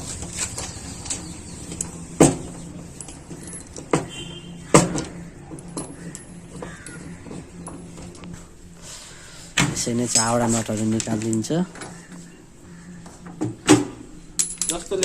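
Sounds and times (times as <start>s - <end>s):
metal tools and bolts clinking: 2.9s - 7.4s, 14.4s - 15.0s.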